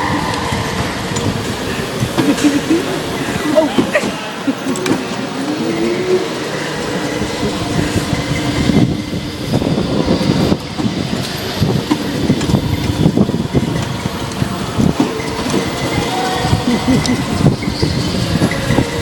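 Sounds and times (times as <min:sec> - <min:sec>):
go-kart engines running: 0:00.0 - 0:19.0
rattling chassis: 0:07.2 - 0:19.0.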